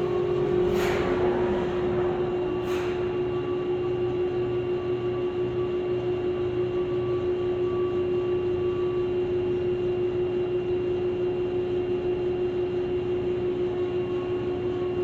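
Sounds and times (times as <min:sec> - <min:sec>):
higher machine whines: 0:00.0 - 0:04.6
overhead crane machinery hum: 0:00.0 - 0:08.2.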